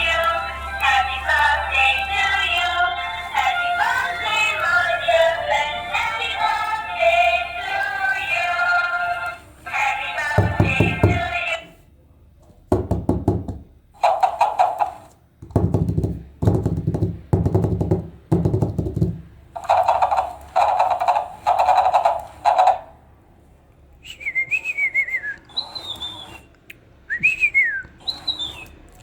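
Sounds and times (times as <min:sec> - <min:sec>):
warbling whistle-like chirps: 0:25.0 - 0:26.5, 0:27.4 - 0:28.8.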